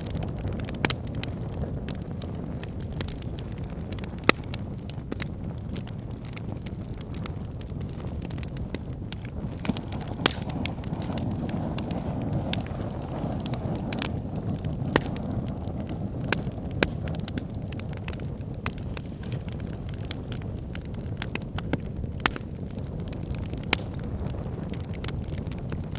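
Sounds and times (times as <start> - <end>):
bonfire flame rumble: 0.0 - 25.9
fire crackles and pops: 0.0 - 25.9.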